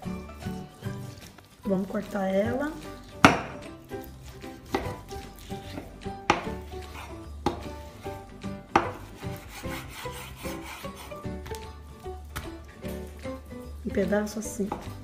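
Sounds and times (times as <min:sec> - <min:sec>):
background music: 0:00.0 - 0:15.0
knife slicing raw meat: 0:00.1 - 0:11.7
knife knocking on wooden board: 0:06.3 - 0:06.6, 0:07.4 - 0:07.7, 0:08.7 - 0:09.1.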